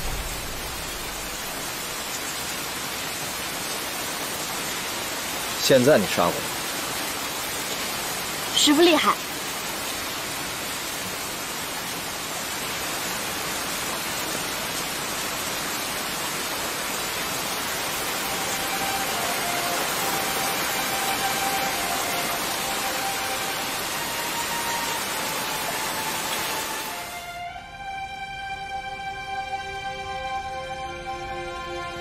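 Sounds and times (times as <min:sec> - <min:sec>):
steady rain falling: 0:00.0 - 0:32.0
faint held music notes: 0:18.1 - 0:32.0.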